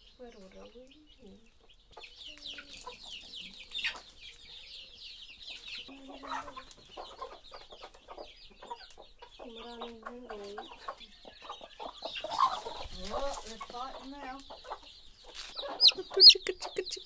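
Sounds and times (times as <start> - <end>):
chickens clucking: 0.0 - 17.0
high falling peeps: 15.7 - 17.0.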